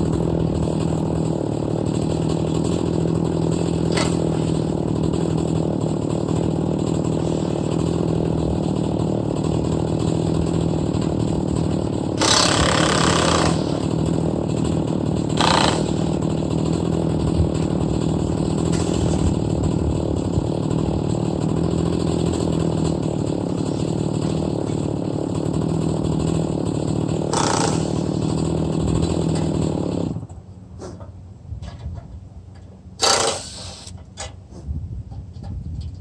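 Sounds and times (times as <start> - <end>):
chainsaw milling wood: 0.0 - 31.0, 33.0 - 34.3
short bursts of hiss: 33.2 - 34.6.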